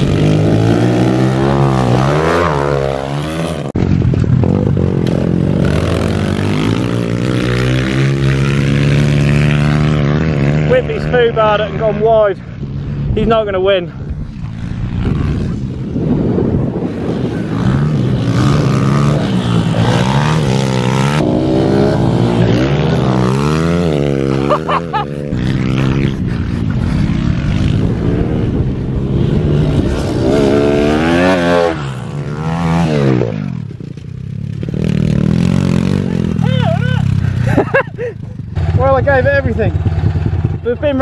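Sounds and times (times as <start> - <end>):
minibike engines revving: 0.0 - 41.0.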